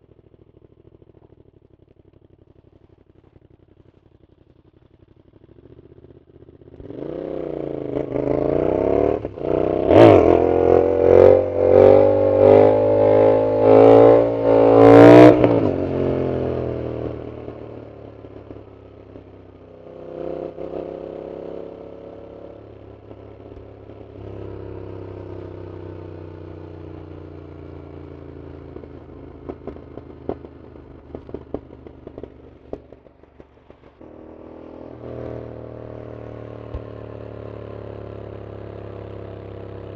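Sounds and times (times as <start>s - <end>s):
motorcycle engine revving: 0.0s - 39.9s
exhaust pops: 28.8s - 35.3s.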